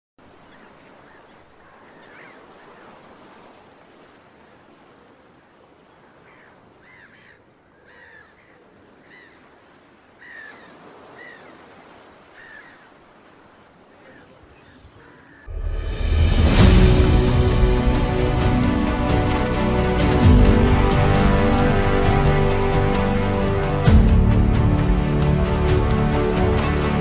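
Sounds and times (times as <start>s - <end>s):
birds chirping: 0.2s - 3.1s, 4.5s - 15.5s.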